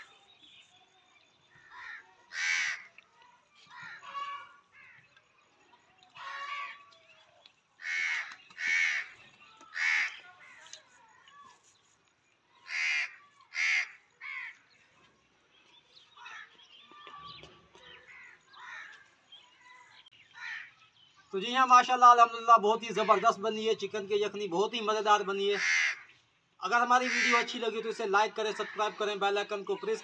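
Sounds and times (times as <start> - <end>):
bird calling loudly: 1.6 - 2.9, 7.8 - 10.4, 12.6 - 14.6, 25.4 - 26.2, 26.8 - 27.7.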